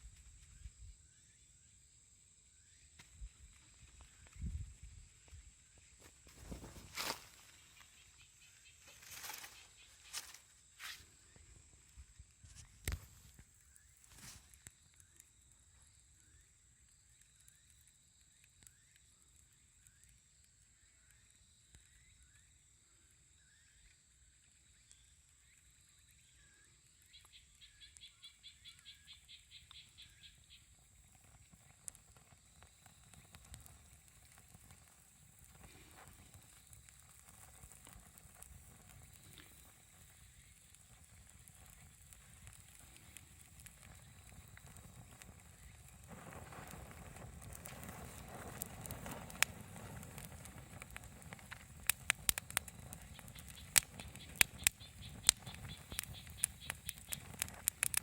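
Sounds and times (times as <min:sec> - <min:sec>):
faint clicks: 0:31.7 - 0:58.0
animal chirps: 0:53.0 - 0:58.0.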